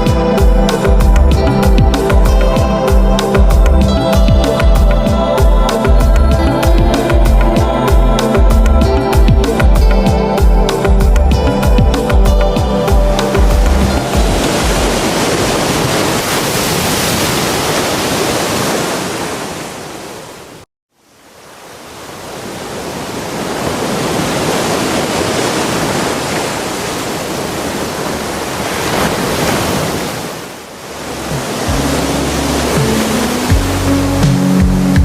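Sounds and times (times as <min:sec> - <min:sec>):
ocean waves breaking: 0:00.0 - 0:20.7, 0:21.3 - 0:35.0.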